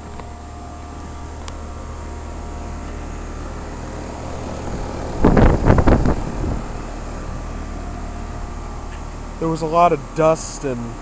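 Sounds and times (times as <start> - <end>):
air conditioner compressor hum: 0.0 - 11.0
fan air rush: 0.0 - 11.0
steady tones: 0.0 - 11.0
loud rumbling burst: 4.2 - 7.6.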